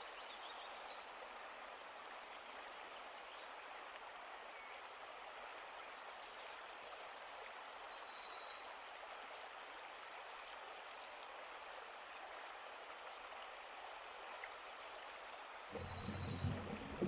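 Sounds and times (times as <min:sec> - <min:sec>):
running water rushing: 0:08.5 - 0:17.0
songbirds singing trilled phrases: 0:15.3 - 0:17.0.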